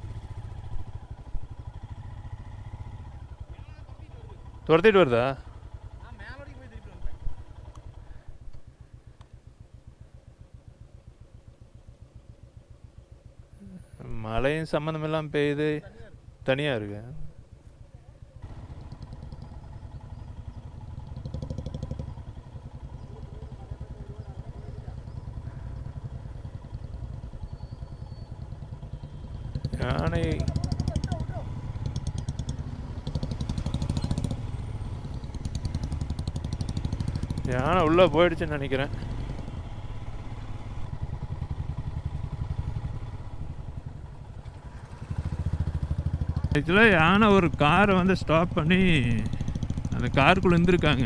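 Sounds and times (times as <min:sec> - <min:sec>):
motorcycle engine running: 0:00.0 - 0:16.5, 0:17.2 - 0:51.0.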